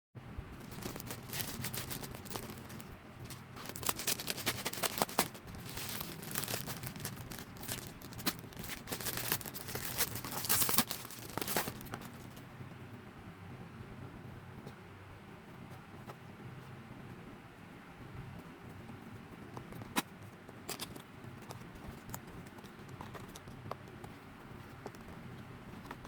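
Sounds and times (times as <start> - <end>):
packaging crinkling and tearing: 0.6 - 12.4.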